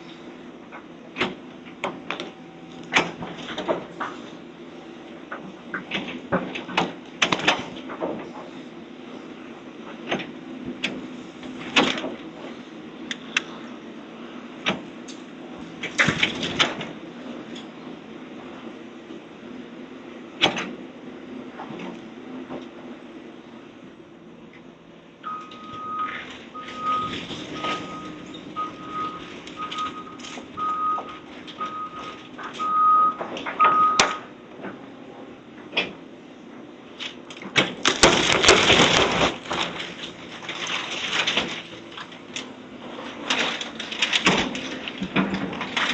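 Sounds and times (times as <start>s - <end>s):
heavy equipment engine running: 0.0s - 45.9s
knocks and clanks: 5.3s - 8.5s, 37.0s - 45.9s
rattling crash of debris: 15.7s - 17.0s, 25.6s - 34.1s, 37.0s - 45.9s
backup alarm beeping: 25.2s - 34.3s.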